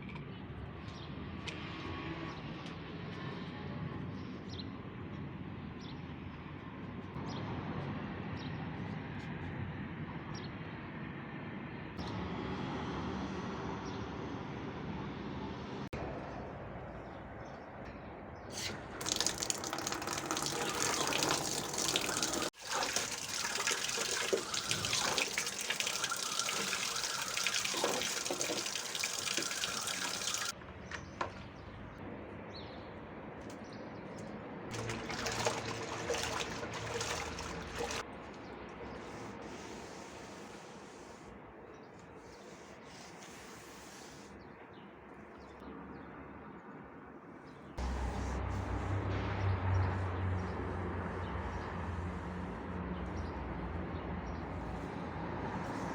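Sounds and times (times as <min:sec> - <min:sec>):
water running and splashing: 0:18.9 - 0:30.6, 0:34.7 - 0:38.0.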